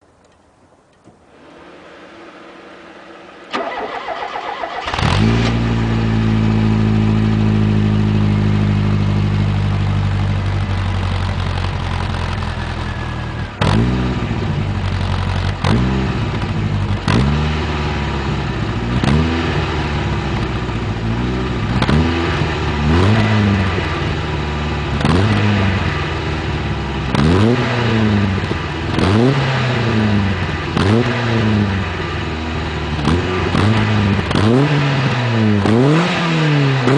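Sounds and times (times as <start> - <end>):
car engine idling and revving: 1.3 - 36.9
starter motor cranking: 3.5 - 5.6.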